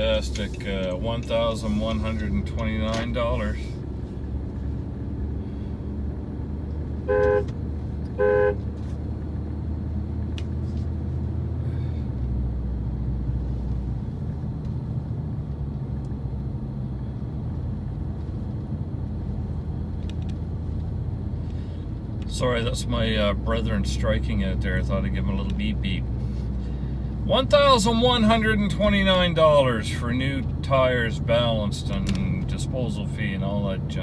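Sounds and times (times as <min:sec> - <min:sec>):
road and engine rumble: 0:00.0 - 0:34.0
car horn beeps: 0:07.0 - 0:08.7.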